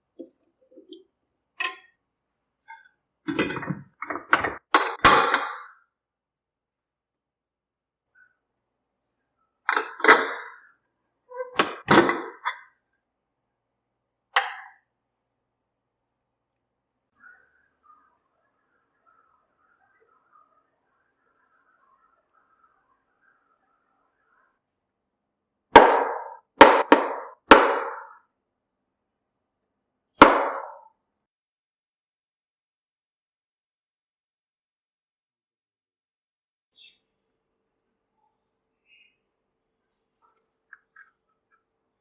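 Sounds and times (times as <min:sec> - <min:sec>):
kitchen utensils clanking: 0:03.3 - 0:05.4.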